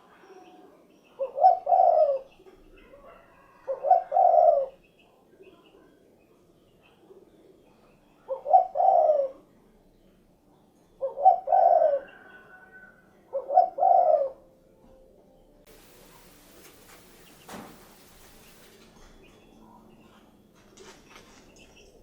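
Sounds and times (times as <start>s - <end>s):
dove cooing: 0.5s - 4.8s, 8.2s - 9.5s, 11.0s - 14.5s.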